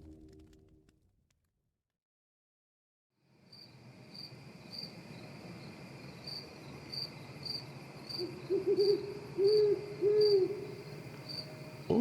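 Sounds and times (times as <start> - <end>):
faint steady insect tone: 3.2 - 12.0
cricket chirping: 3.4 - 12.0
owl hooting: 8.2 - 10.9.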